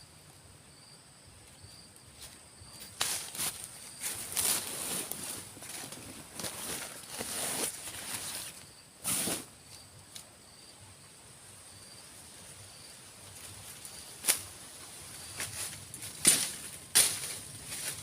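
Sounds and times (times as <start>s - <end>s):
high insect drone: 0.0s - 18.0s
rustling and handling noise: 2.2s - 9.8s.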